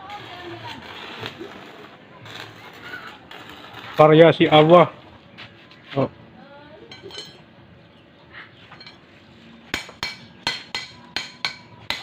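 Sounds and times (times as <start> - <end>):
hammer striking steel: 9.7 - 12.0.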